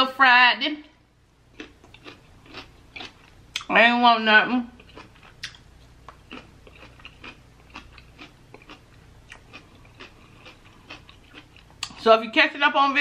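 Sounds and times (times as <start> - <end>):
faint chewing: 1.5 - 3.7, 4.7 - 12.0.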